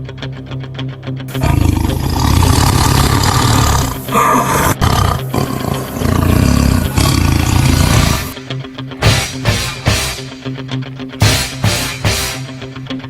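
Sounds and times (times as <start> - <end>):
tiger roaring: 1.3 - 8.4.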